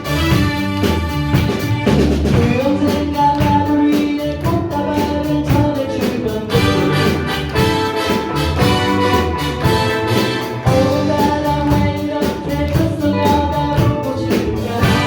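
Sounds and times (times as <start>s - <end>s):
drum hits: 0.0s - 3.6s, 6.5s - 12.4s
live band playing pop-rock: 0.0s - 15.0s
person singing: 2.3s - 15.0s.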